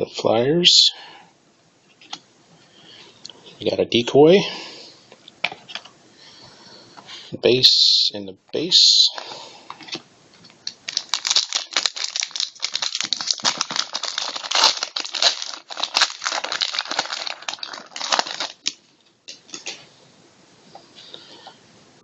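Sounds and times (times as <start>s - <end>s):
card pack wrapper crinkling and tearing: 10.6s - 19.8s.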